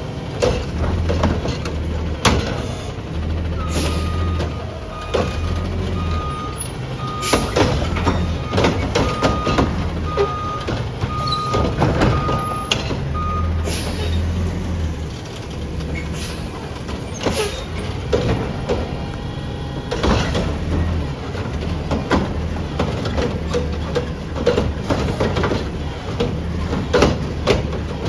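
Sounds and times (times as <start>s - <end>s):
diesel truck engine running: 0.0s - 28.0s
knocks and clanks: 0.4s - 14.5s, 15.3s - 28.0s
reversing alarm beeping: 3.5s - 14.2s.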